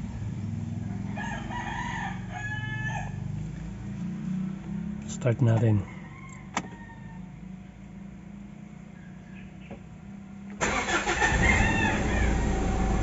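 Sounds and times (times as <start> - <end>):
diesel engine starting and idling: 10.5 - 13.0.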